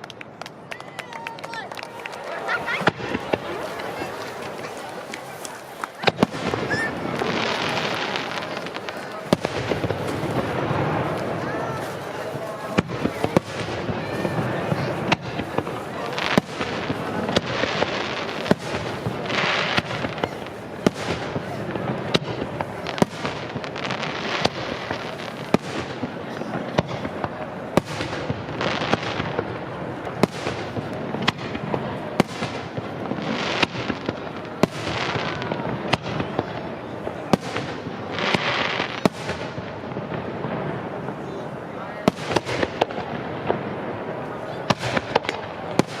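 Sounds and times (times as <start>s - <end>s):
fireworks crackling: 0.0s - 46.0s.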